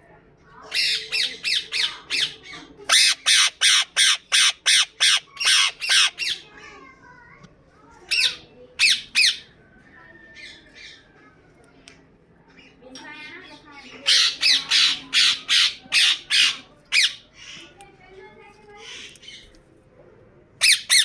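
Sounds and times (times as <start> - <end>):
parakeet screeching: 0.7 - 6.4, 8.1 - 9.5, 13.9 - 17.6, 20.6 - 21.0.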